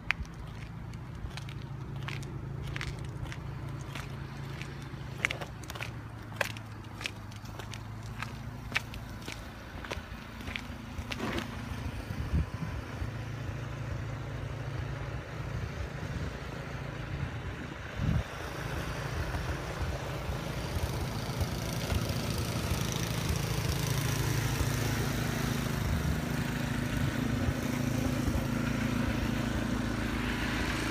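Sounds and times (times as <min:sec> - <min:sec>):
engine running: 0:00.0 - 0:30.9.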